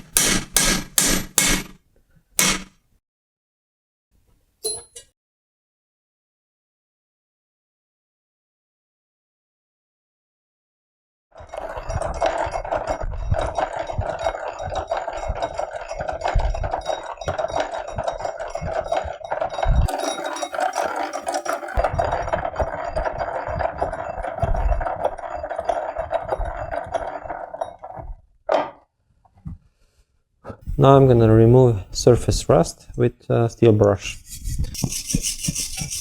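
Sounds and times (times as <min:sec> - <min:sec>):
hand drill grinding through steel: 0:00.0 - 0:01.7, 0:11.4 - 0:28.0, 0:34.0 - 0:36.0
drill crank knocks: 0:00.0 - 0:01.8, 0:02.4 - 0:02.8, 0:11.5 - 0:28.8.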